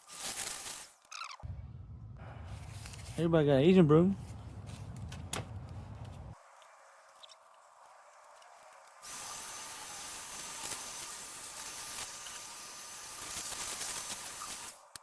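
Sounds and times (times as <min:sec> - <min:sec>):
pressurized gas hissing: 0:09.0 - 0:15.0.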